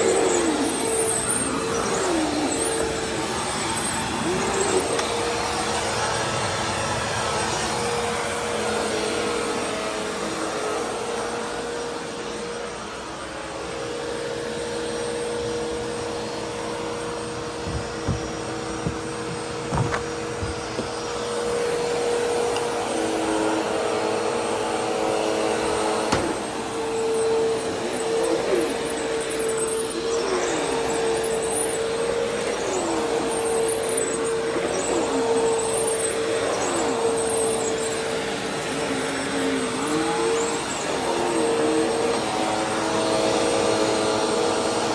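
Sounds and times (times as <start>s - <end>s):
vacuum cleaner motor whining: 0.0s - 44.9s
short knocks: 17.4s - 21.1s.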